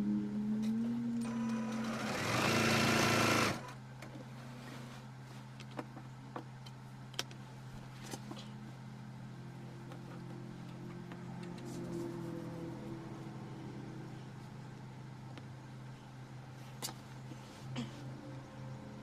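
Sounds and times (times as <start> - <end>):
low steady hum: 0.0 - 2.2, 3.5 - 19.0
electric sewing machine stitching: 1.2 - 3.8.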